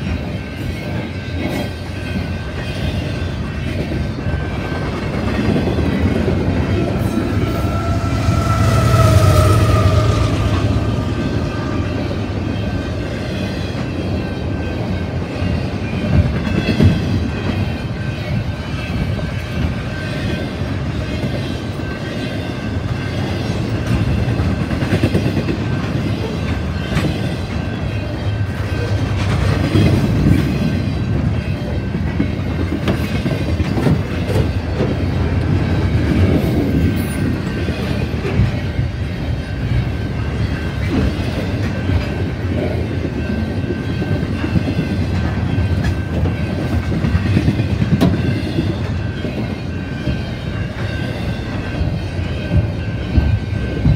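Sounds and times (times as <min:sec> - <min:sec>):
steel wheels rumbling on rail: 0:00.0 - 0:53.9.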